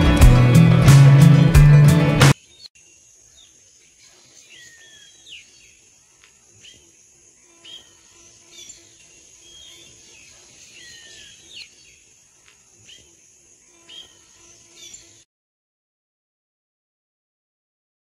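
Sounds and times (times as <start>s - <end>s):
birds chirping and whistling: 3.4s - 5.8s, 7.6s - 12.0s, 13.9s - 15.2s.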